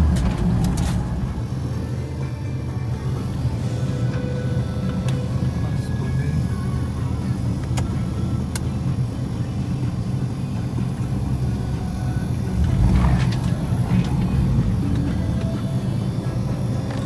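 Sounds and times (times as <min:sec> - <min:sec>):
engine surge with crackling: 0:00.0 - 0:01.9, 0:11.0 - 0:17.0
car engine running: 0:00.0 - 0:17.0.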